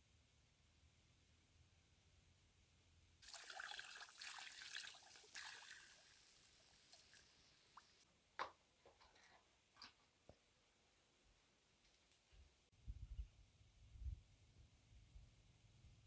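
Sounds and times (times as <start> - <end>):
water dripping: 3.2 - 8.0
water pouring: 3.2 - 8.0.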